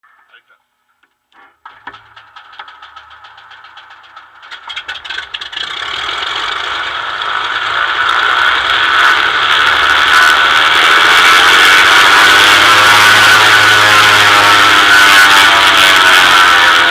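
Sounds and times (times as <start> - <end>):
rattle: 1.4 - 10.4
propeller plane engine revving: 1.6 - 16.9.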